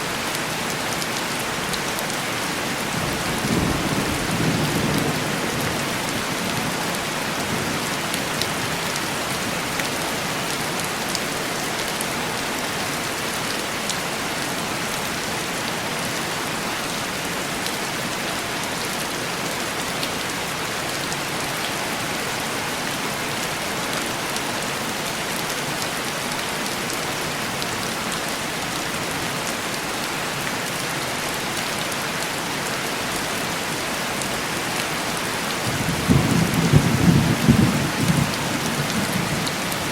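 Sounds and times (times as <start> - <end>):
heavy rain on window glass: 0.4 - 12.0, 34.4 - 39.9.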